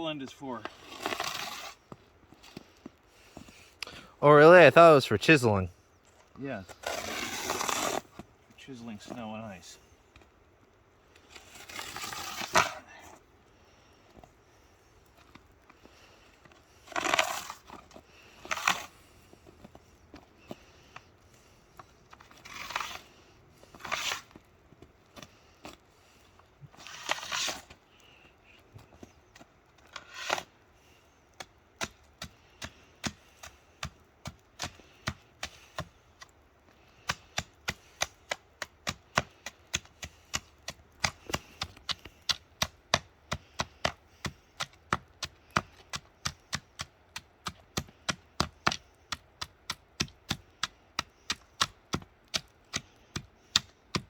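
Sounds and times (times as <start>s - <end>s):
ice chisel scraping ice: 0.6s - 1.9s, 6.7s - 8.2s, 11.3s - 12.9s, 16.8s - 19.1s, 22.1s - 24.4s, 26.7s - 27.8s, 29.9s - 30.5s
ice chisel striking ice: 37.0s - 54.0s.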